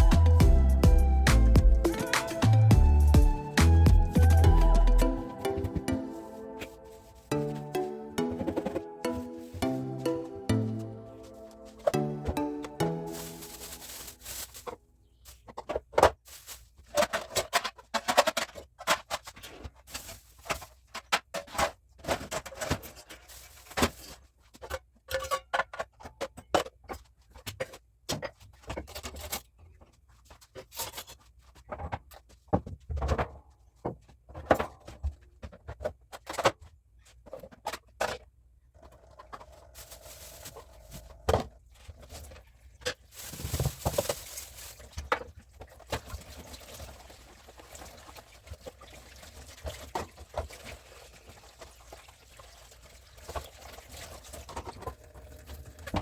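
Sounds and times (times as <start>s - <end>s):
household items clattering: 5.3s - 9.8s, 10.6s - 14.8s, 34.0s - 52.0s.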